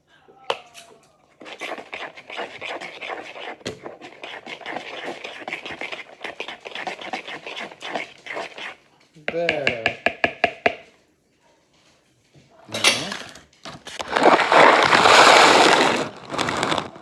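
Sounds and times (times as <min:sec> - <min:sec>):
spoon scraping batter in bowl: 0:00.8 - 0:09.7.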